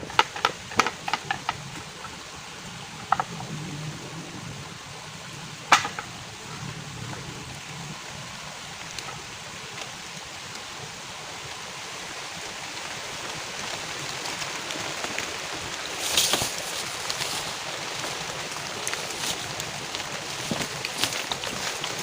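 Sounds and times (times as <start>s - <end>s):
heavy rain falling: 0.0s - 22.0s
short rustle: 15.9s - 22.0s.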